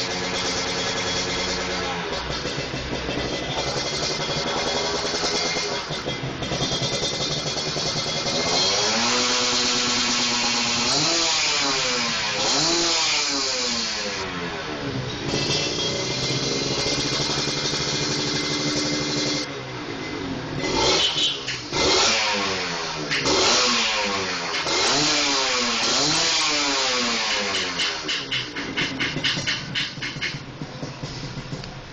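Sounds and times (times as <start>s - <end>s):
exhaust popping sputter: 0.0s - 11.2s, 15.1s - 19.5s, 22.6s - 31.9s
two-stroke motorcycle engine running: 0.0s - 19.5s, 20.6s - 31.9s.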